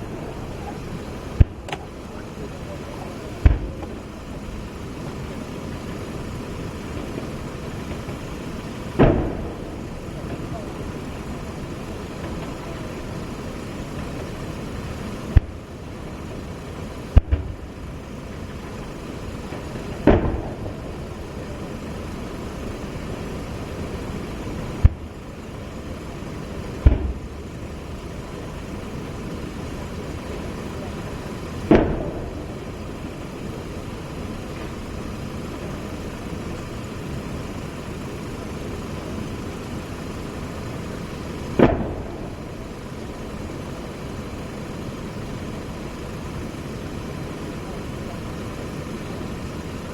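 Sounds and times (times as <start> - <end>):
background rumble: 0.0 - 49.9
weapons firing: 3.4 - 4.0, 7.9 - 10.8, 20.0 - 21.0, 26.8 - 27.2, 31.7 - 32.6, 41.6 - 42.6.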